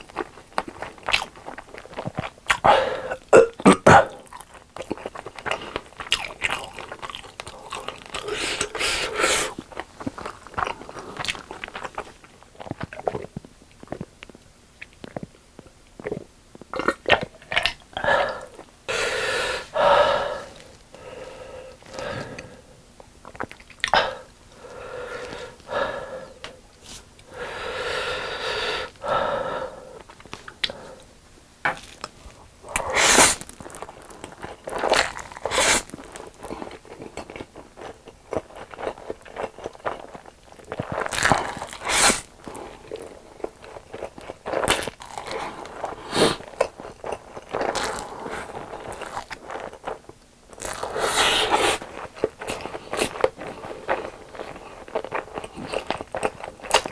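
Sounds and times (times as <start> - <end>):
noodles slurped: 0.0 - 13.3, 32.7 - 56.9.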